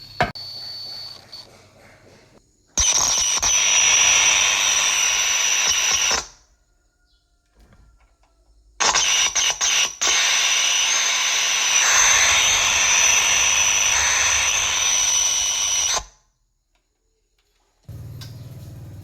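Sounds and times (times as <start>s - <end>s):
power tool motor whining: 2.8s - 6.4s, 8.8s - 16.2s.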